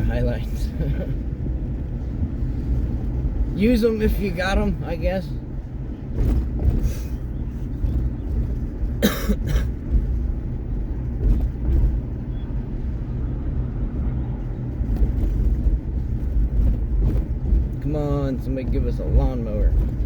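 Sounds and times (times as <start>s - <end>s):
vehicle engine and road rumble: 0.0s - 20.0s
person coughing: 9.0s - 9.8s.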